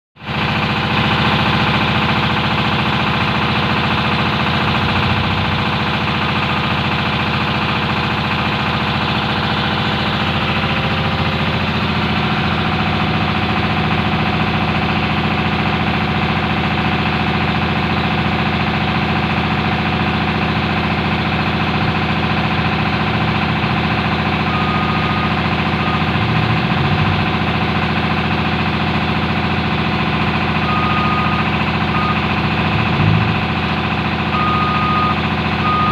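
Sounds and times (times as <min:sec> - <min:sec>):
mechanical engine-like drone: 0:00.2 - 0:35.9
short high beeps: 0:24.5 - 0:26.4, 0:30.6 - 0:32.2, 0:34.4 - 0:35.9.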